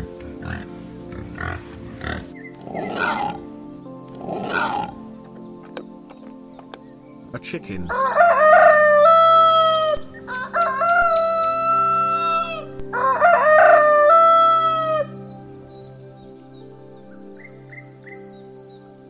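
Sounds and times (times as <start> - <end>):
rooster crowing: 7.9 - 15.1.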